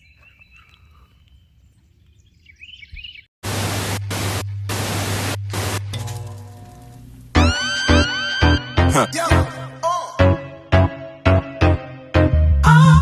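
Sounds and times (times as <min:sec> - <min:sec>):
bird chirps: 0:00.0 - 0:03.3
loud static-like hiss: 0:03.4 - 0:07.3.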